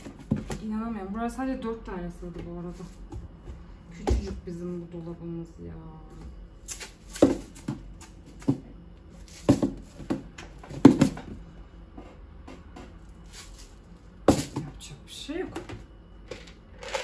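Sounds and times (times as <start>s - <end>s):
plastic containers knocking and clattering: 9.4s - 11.4s.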